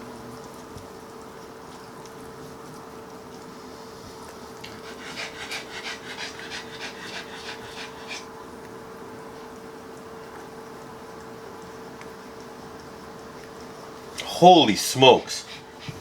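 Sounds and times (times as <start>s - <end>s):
dog panting: 4.2s - 8.4s, 14.2s - 16.0s.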